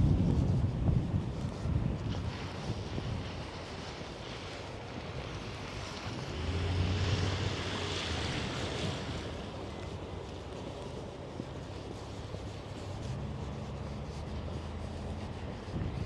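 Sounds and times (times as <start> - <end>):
traffic: 0.0 - 16.0
wind noise on microphone: 0.0 - 16.0
vehicle passing: 5.0 - 10.3.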